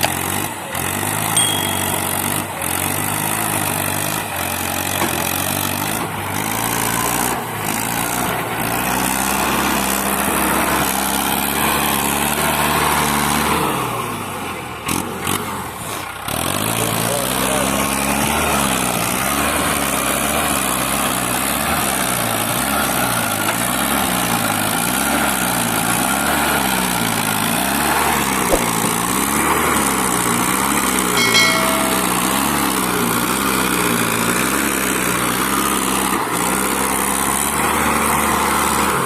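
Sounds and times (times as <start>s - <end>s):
tractor diesel engine straining: 0.0s - 39.0s
short high tone: 1.4s - 2.6s, 31.2s - 32.7s.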